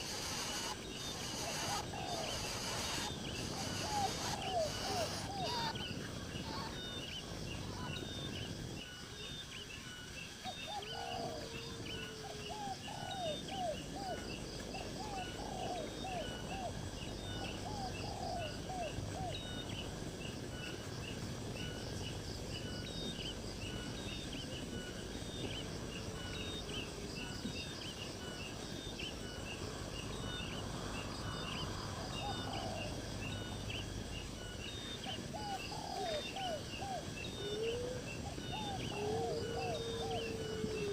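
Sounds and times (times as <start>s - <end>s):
fast high-pitched chirping: 0.0s - 5.8s.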